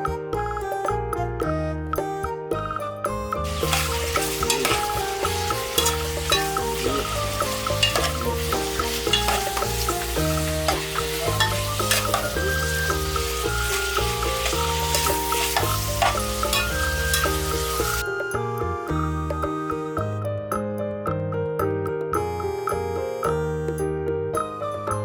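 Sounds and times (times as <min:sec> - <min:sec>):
background music with bass: 0:00.0 - 0:25.0
food frying sizzle: 0:03.4 - 0:18.0.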